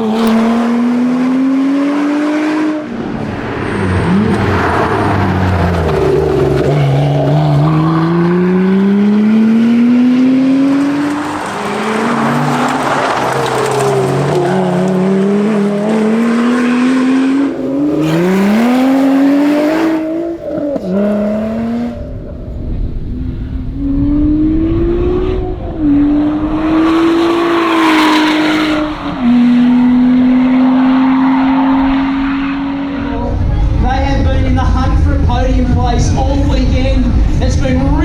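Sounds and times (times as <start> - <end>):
car engine accelerating through gears: 0.0 - 34.0.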